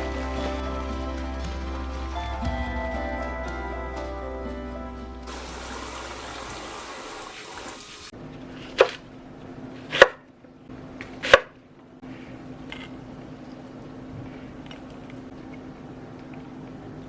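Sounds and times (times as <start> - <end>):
water running from tap: 5.3 - 8.1.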